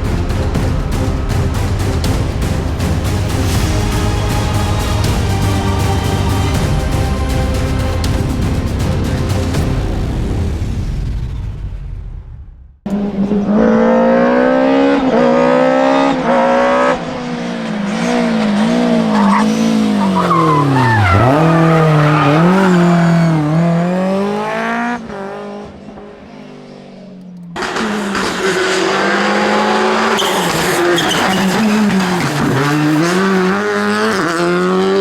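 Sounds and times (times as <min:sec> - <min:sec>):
rally car engine revving: 0:00.0 - 0:35.0
tyres squealing: 0:19.1 - 0:23.8, 0:29.8 - 0:33.2.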